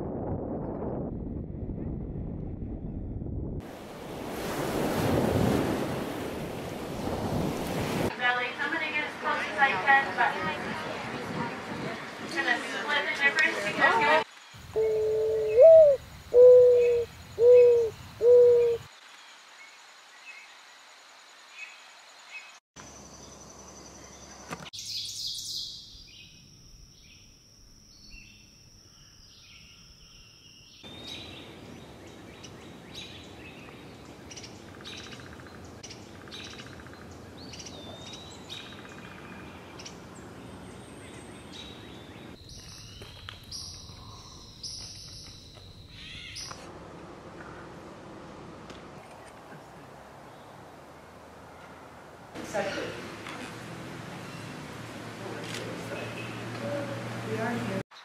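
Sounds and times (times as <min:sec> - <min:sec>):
low bird hoots: 0:14.7 - 0:18.9.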